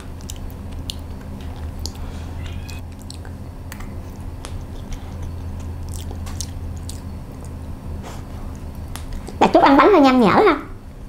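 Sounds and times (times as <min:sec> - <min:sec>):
mouth chewing clicks and smacks: 0:00.0 - 0:07.6
steady low hum: 0:00.0 - 0:11.0.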